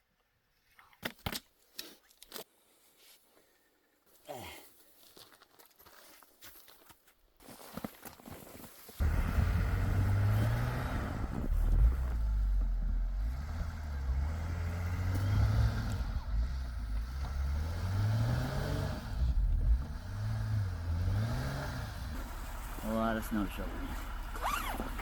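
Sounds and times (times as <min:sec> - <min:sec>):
vehicle engine revving: 0:09.0 - 0:25.0.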